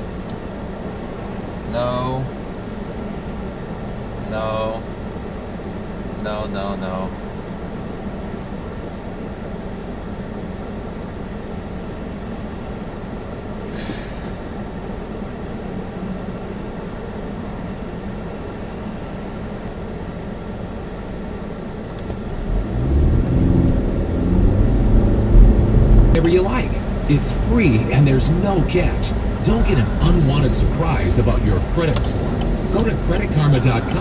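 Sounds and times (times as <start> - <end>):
car engine and heater blower: 0.0 - 34.0
brief sharp hiss: 13.7 - 14.4.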